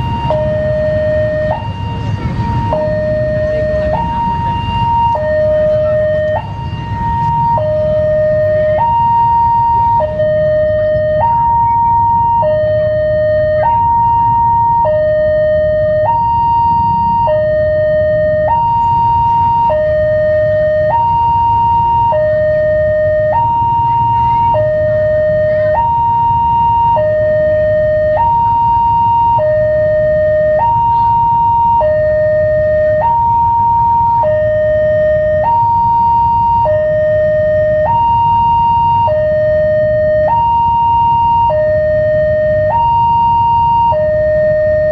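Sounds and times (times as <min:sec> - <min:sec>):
level crossing two-tone alarm: 0:00.0 - 0:44.9.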